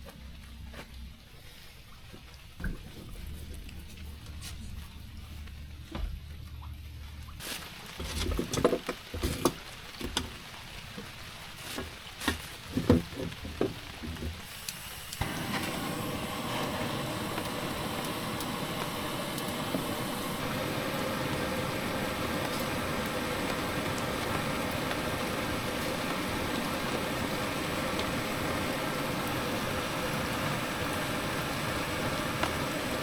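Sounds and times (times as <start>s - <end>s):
knocks and clatters of handling: 8.0s - 10.4s, 11.0s - 14.4s
heavy rain falling: 9.0s - 33.0s.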